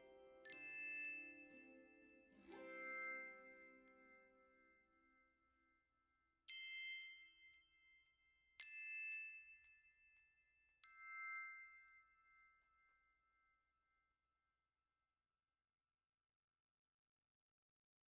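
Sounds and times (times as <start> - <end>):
glockenspiel-like chime notes: 0.0 - 5.9, 6.5 - 14.0.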